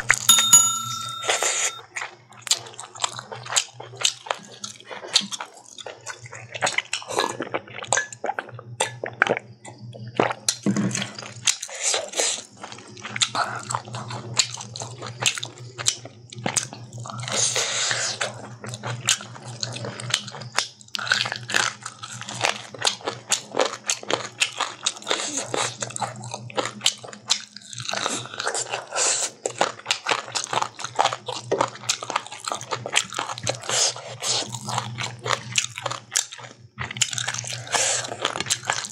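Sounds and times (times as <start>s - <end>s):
person chewing food: 21.0s - 38.9s.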